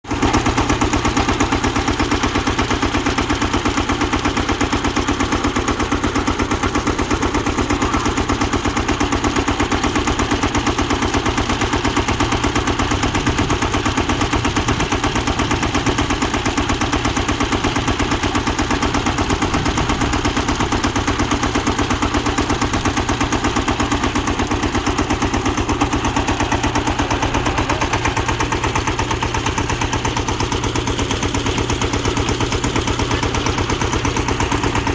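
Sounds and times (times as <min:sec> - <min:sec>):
drilling machine diesel engine: 0:00.1 - 0:34.9
rapid even knocking: 0:12.0 - 0:34.9.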